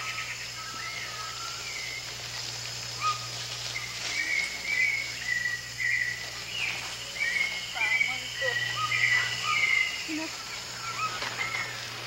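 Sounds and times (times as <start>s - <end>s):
insects buzzing: 0.0s - 12.0s
whistled bird calls: 3.0s - 12.0s.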